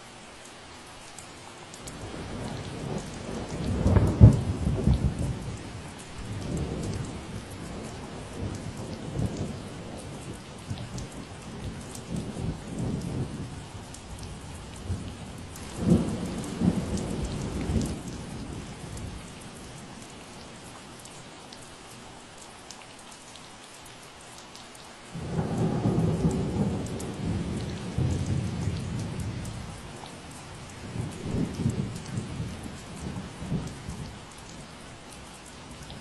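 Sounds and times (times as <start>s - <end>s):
steady rain falling: 0.0s - 36.0s
low thunder rumbling: 1.9s - 20.0s, 25.2s - 34.6s.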